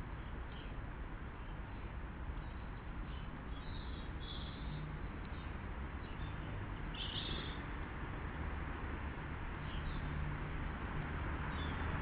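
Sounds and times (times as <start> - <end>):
small bird chirping: 2.4 - 7.6.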